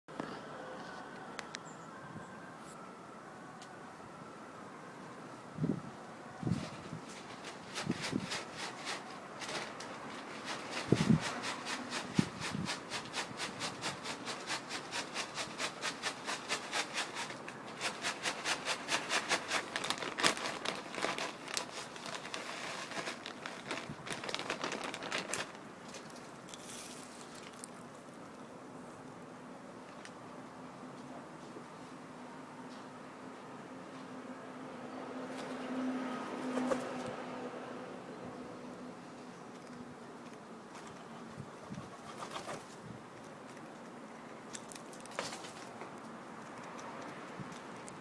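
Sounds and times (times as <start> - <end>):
pigeons pecking on hard surface: 7.1 - 28.5.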